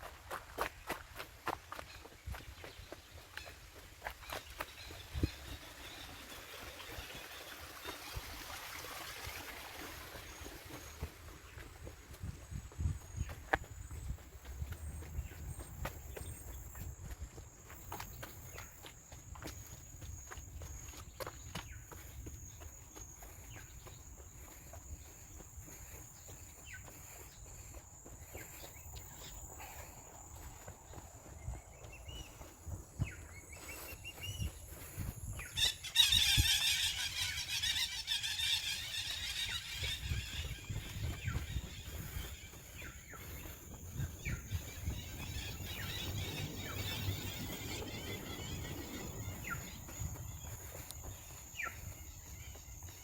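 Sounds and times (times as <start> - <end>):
footsteps on forest trail: 0.0 - 53.0.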